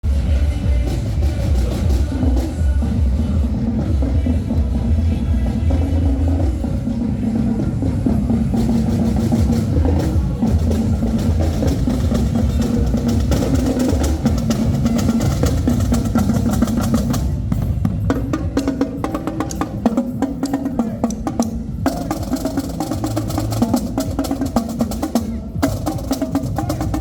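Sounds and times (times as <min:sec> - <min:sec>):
steady low bass: 0:00.0 - 0:19.9
snare and bass drums: 0:00.0 - 0:27.0.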